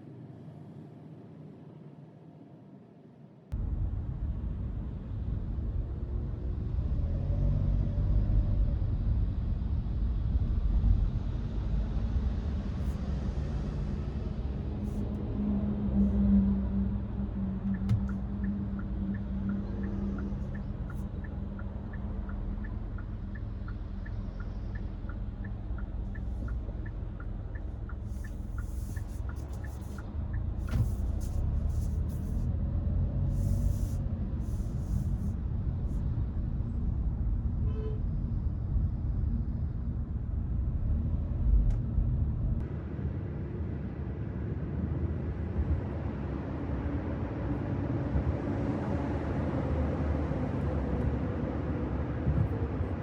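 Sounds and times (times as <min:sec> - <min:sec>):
road and engine rumble: 0:03.5 - 0:53.0
turn signal ticking: 0:17.5 - 0:32.4.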